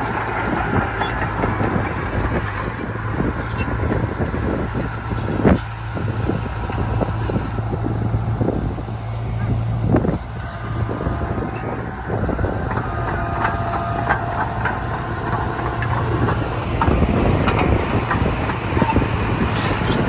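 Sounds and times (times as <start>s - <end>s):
heavy diesel machinery running: 0.0s - 20.0s.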